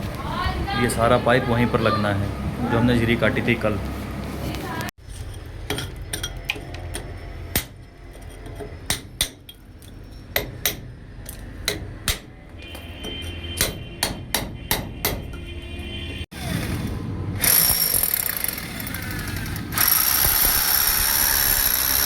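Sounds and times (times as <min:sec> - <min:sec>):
hammer striking: 0:05.7 - 0:07.9, 0:08.6 - 0:09.6, 0:10.3 - 0:10.9, 0:11.6 - 0:15.4.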